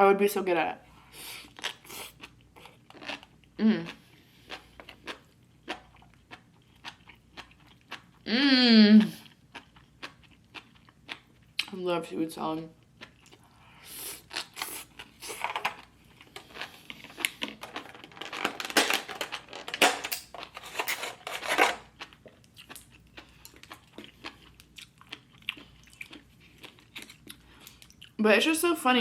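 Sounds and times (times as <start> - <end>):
person chewing wetly: 1.4 - 8.2, 9.0 - 11.7, 12.8 - 17.9, 21.9 - 28.2.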